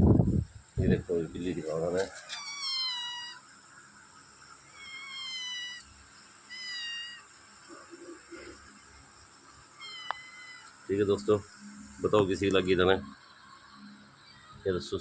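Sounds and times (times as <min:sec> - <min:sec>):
cat meowing: 0:02.2 - 0:03.4, 0:04.7 - 0:07.3, 0:09.8 - 0:10.8.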